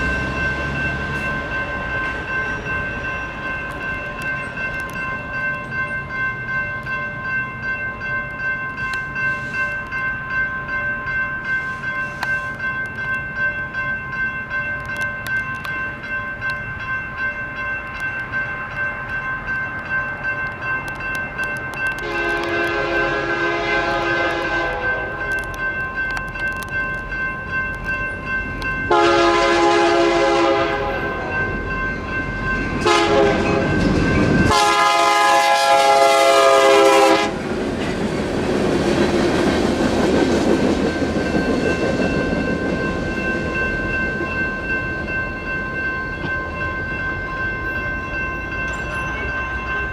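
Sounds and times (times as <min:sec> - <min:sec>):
railroad crossing bells ringing: 0:00.0 - 0:49.9
train rumble: 0:00.0 - 0:49.9
locomotive horn blasts: 0:22.0 - 0:25.5, 0:28.9 - 0:31.6, 0:32.8 - 0:37.5.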